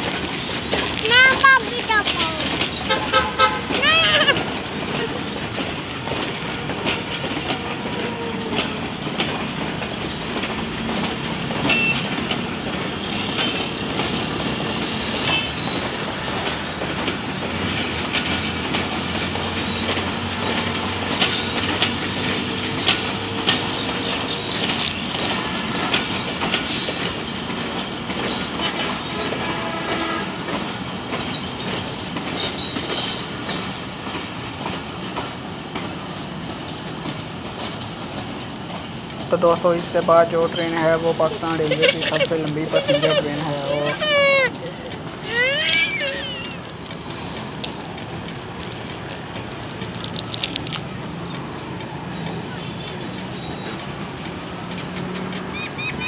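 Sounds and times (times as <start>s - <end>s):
train coaches rumbling past: 0.0s - 56.0s
wheels clicking over rail joints: 0.0s - 56.0s
high-pitched wheel squeals: 43.9s - 46.6s.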